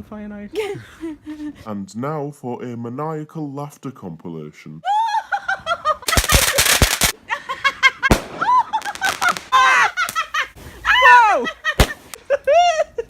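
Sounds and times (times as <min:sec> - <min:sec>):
shrieking high-pitched laughter: 0:04.8 - 0:13.0
firework bangs and crackle: 0:06.1 - 0:07.2, 0:08.0 - 0:10.6, 0:11.8 - 0:12.2.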